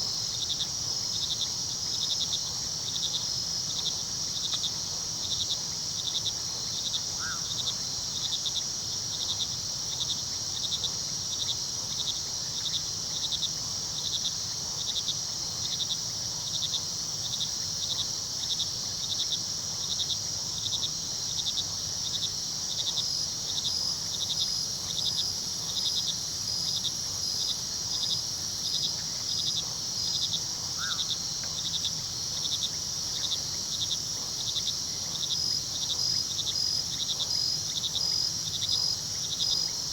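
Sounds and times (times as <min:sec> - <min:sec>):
crickets chirping: 0:00.0 - 0:39.9
high insect trill: 0:15.1 - 0:39.9.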